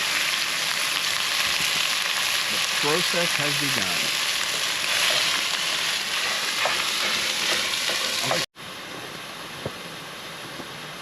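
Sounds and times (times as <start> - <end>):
food sizzling in hot oil: 0.0 - 8.5
steady hiss: 0.0 - 11.0.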